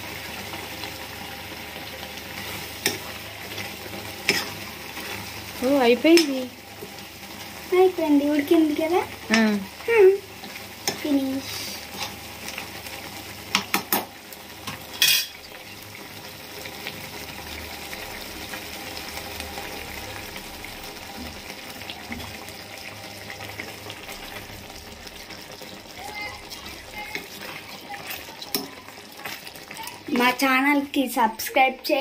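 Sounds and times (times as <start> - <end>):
curry sizzling in a pan: 0.0 - 32.0
spoon stirring: 2.4 - 5.2
spoon knocking against pan: 13.5 - 14.1.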